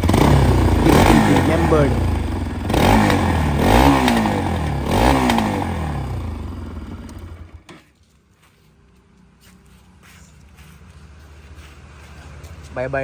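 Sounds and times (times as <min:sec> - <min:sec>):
motorcycle engine revving: 0:00.0 - 0:07.9
engine cutoff click: 0:06.8 - 0:07.8.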